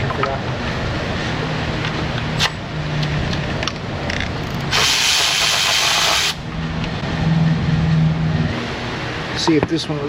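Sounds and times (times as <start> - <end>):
pneumatic air ratchet running: 4.6 - 6.4
exhaust air hiss: 4.7 - 6.5.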